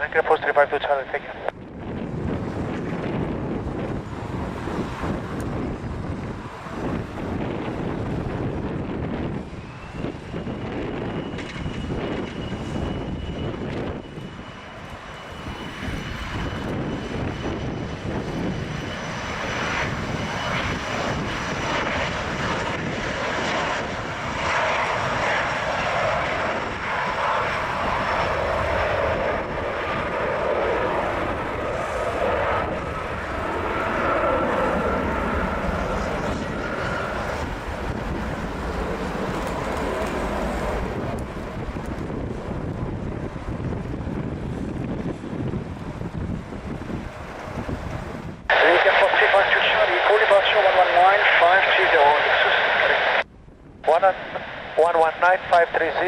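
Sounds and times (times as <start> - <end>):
jet engines at takeoff: 0.0 - 56.0
wind rumble on microphone: 1.3 - 48.6, 52.5 - 54.8.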